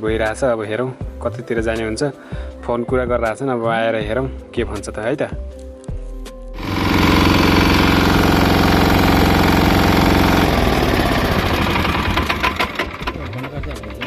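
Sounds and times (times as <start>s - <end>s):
diesel truck engine running: 6.6s - 14.0s.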